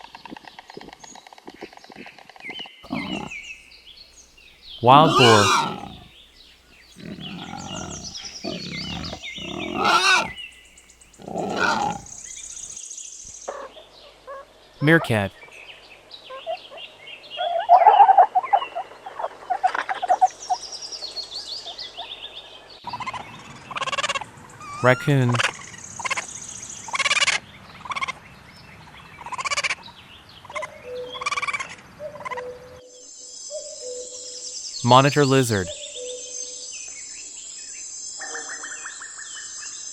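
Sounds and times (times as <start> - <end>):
wild boar grunting: 2.9 - 3.4, 4.8 - 6.1, 6.9 - 10.5, 11.2 - 12.4
raccoon chittering: 2.9 - 3.5, 4.8 - 6.2, 6.9 - 12.8
faint high chirping: 2.9 - 3.6, 4.8 - 6.1, 6.9 - 12.8.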